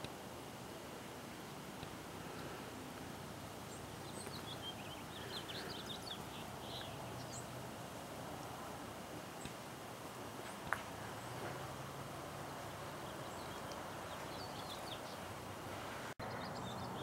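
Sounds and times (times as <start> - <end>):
outdoor background noise: 0.0 - 17.0
small bird chirping: 3.7 - 7.5, 12.6 - 15.3.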